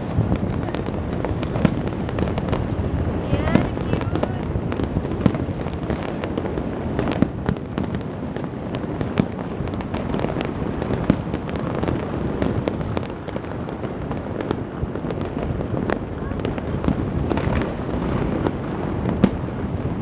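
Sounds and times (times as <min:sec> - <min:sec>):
distant firework bursts rumbling: 0:00.0 - 0:20.0
firecrackers cracking and popping: 0:00.0 - 0:20.0.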